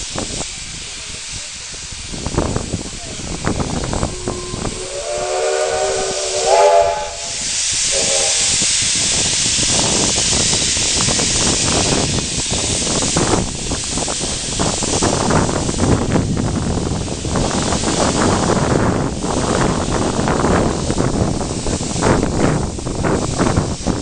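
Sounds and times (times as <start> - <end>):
loud rushing steam hiss: 0.0 - 24.0
steam locomotive whistle: 3.6 - 9.2.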